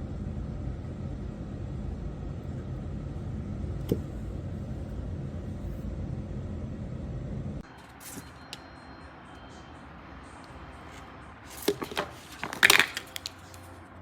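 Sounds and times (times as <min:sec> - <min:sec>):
steady low rumbling: 0:00.0 - 0:07.6.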